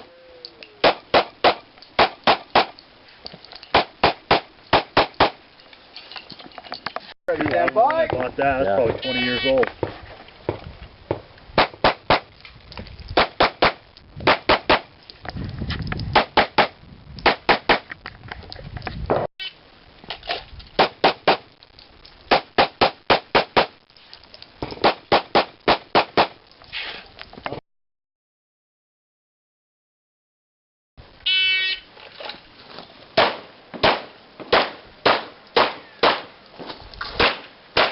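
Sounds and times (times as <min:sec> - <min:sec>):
pistol shots: 0:33.2 - 0:36.3, 0:37.2 - 0:37.9.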